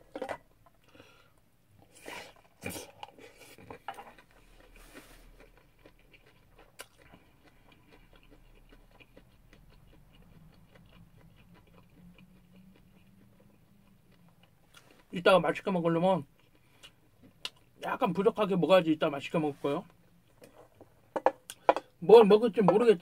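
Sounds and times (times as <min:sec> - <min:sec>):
faint chewing: 0:00.1 - 0:17.9.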